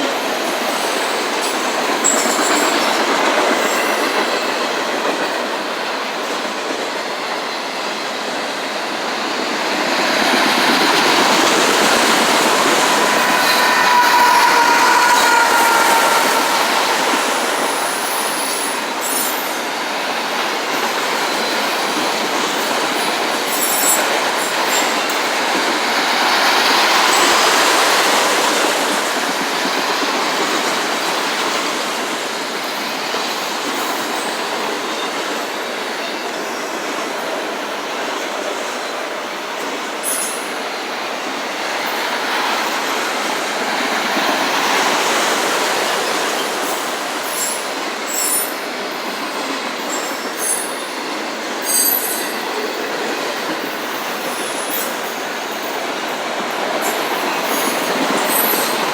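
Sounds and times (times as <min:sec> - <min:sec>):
freight train wheels rattling: 0:09.3 - 0:28.9
high-pitched wheel squeaks: 0:11.6 - 0:19.5.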